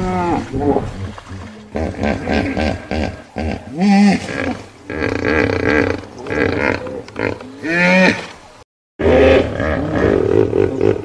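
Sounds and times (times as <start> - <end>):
hippopotamus grunting: 9.0 - 11.0.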